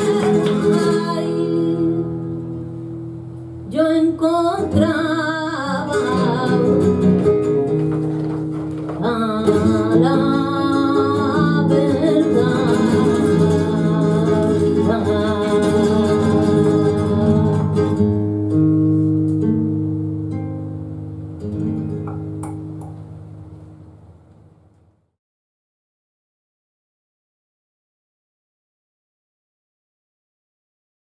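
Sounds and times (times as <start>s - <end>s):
person singing flamenco: 0.0s - 2.8s, 3.6s - 19.9s
flamenco guitar: 0.0s - 24.6s.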